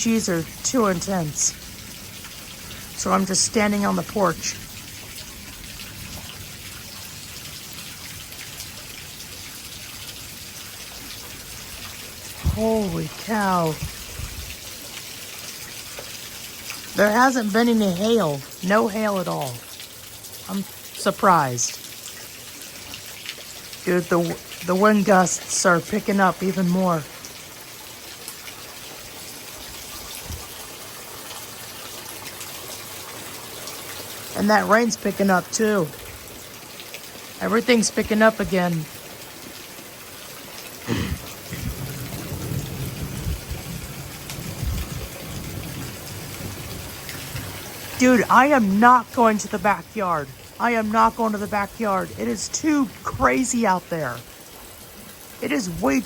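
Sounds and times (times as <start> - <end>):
heavy rain hissing: 0.0 - 56.0
raindrops pattering on surfaces: 0.0 - 56.0
gusty wind: 13.7 - 14.6, 41.5 - 47.8.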